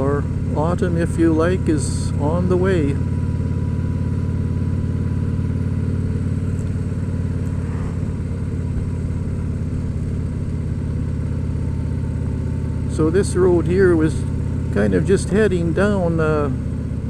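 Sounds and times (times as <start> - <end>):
motorcycle engine droning: 0.0 - 17.0.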